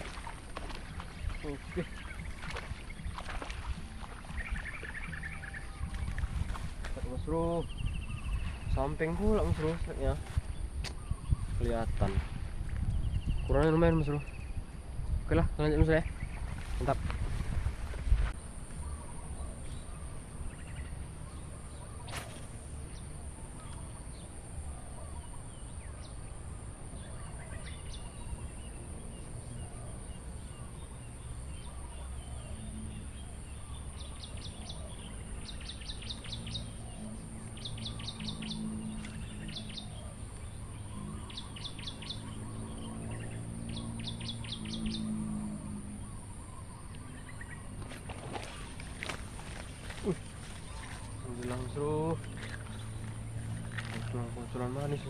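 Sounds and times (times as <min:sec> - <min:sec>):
low droning hum: 0:00.0 - 0:55.0
bird trilling: 0:31.5 - 0:55.0.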